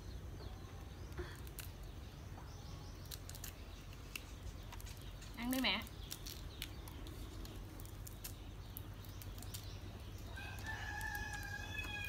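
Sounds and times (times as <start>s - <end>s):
shrimp being peeled by hand: 2.9s - 12.0s
rooster crowing: 10.3s - 12.0s.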